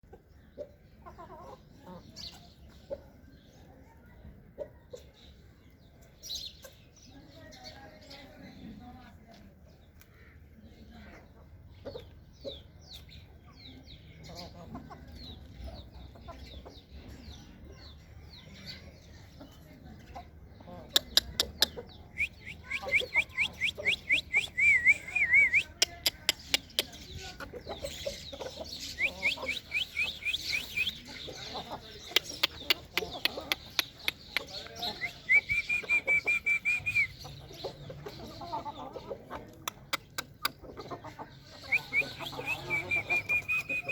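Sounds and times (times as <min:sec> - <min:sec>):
chickens clucking: 0:00.0 - 0:07.2, 0:09.3 - 0:43.9
rapid high chirping: 0:22.2 - 0:27.0, 0:27.8 - 0:31.1, 0:32.1 - 0:37.2
sharp clicks: 0:39.6 - 0:40.6.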